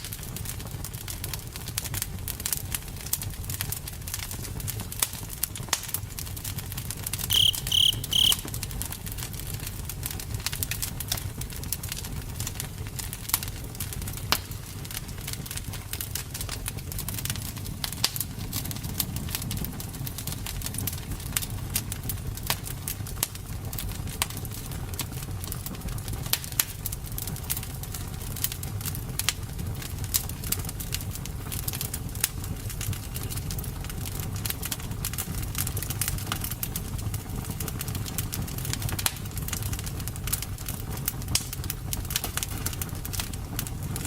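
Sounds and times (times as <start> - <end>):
campfire crackling and popping: 0.0 - 44.0
campfire low rumble: 0.0 - 44.0
short high chirps: 7.3 - 8.5.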